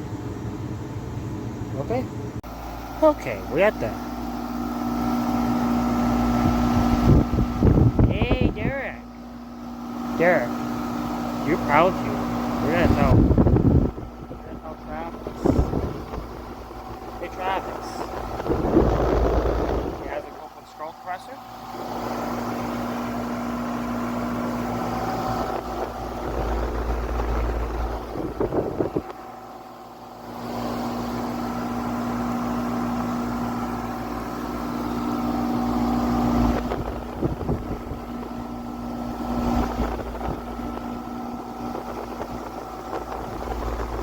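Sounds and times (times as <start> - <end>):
furnace blower motor humming: 0.0 - 44.0
rush of moving air: 18.0 - 20.0.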